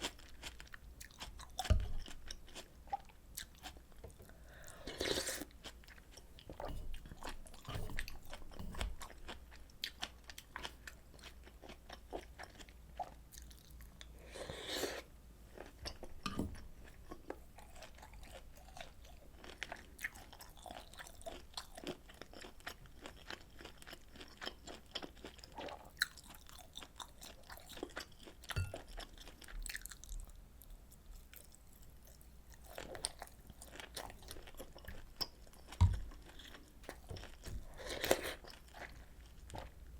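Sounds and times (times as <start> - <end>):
chewing and biting food: 16.8 - 30.3.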